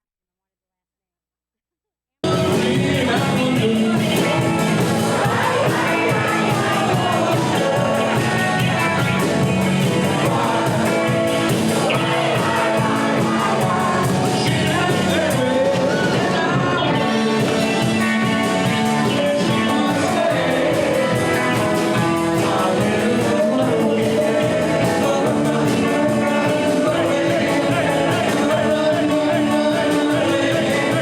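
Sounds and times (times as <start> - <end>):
live rock band with singer: 2.2 - 31.0.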